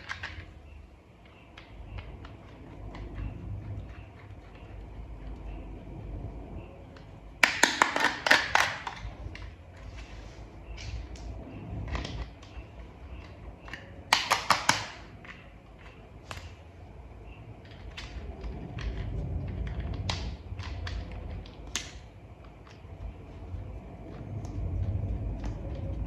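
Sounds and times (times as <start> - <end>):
plastic toy parts clicking: 0.0 - 0.6, 13.2 - 16.6
low rumble: 0.0 - 7.6, 8.4 - 14.1, 14.9 - 26.0.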